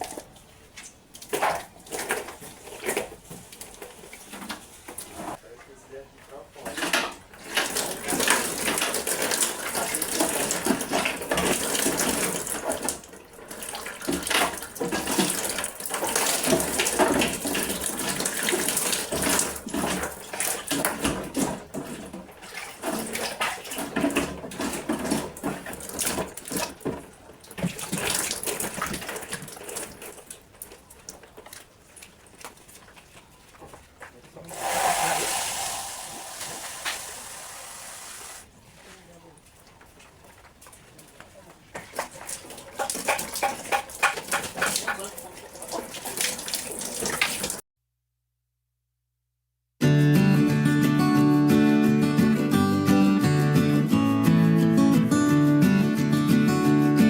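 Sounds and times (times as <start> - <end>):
running water: 7.3 - 47.6
water splashing: 22.3 - 38.7, 39.4 - 47.6
knocks and clatters: 41.8 - 45.1.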